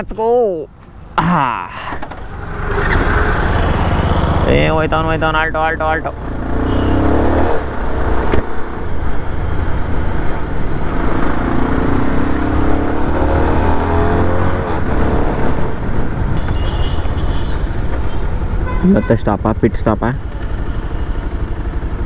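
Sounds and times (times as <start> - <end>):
wind and road noise: 0.0 - 22.0
motorcycle engine accelerating: 2.1 - 16.4.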